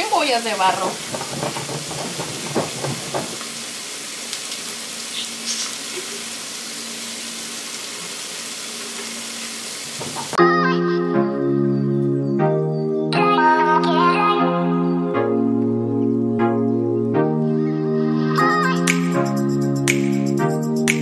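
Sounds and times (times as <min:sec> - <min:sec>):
food sizzling: 0:00.0 - 0:10.4
background music: 0:10.4 - 0:21.0.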